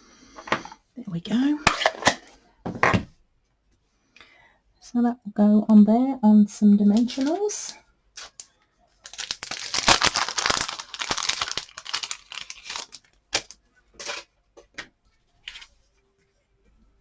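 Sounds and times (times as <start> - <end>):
paper crinkling and rustling: 6.9 - 8.4, 9.0 - 14.3.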